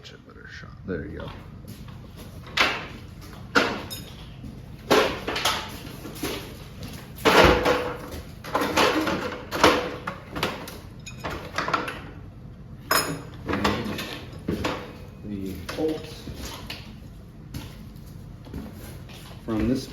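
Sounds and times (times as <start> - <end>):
metal tools clanking: 1.3 - 12.2, 12.8 - 16.9.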